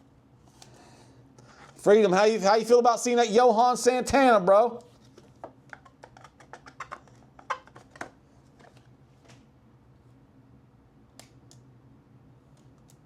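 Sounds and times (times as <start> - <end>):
faint low hum: 0.0 - 13.0
cards clicking and scraping: 4.8 - 9.4.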